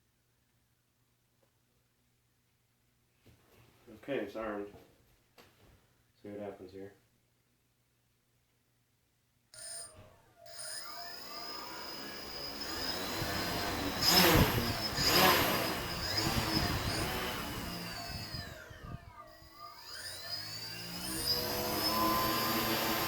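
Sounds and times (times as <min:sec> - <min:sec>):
drone motors whirring: 0:09.6 - 0:23.0.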